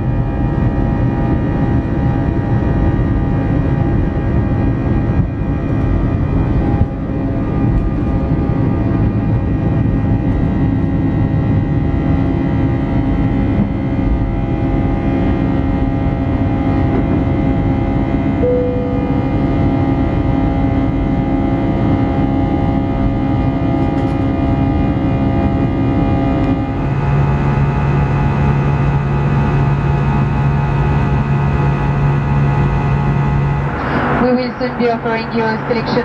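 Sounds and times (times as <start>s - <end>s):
jet engine rumble in cabin: 0.0s - 36.0s
steady whining tones: 13.2s - 22.9s, 30.2s - 36.0s.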